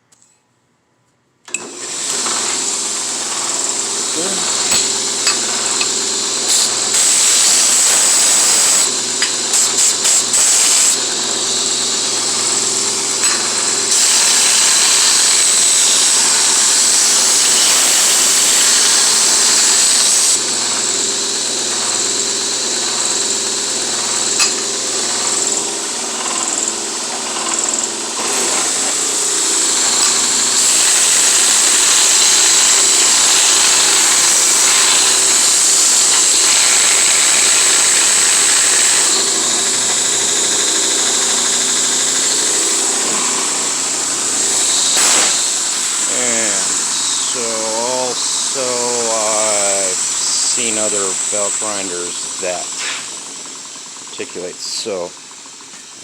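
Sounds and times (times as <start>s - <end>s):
motor hum: 1.5s - 55.7s
sanding belt hissing: 1.9s - 55.2s.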